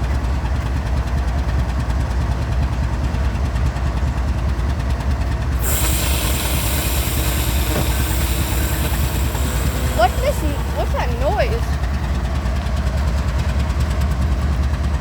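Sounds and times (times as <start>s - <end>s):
diesel locomotives idling: 0.0s - 15.0s
loud steady hiss: 5.6s - 11.9s.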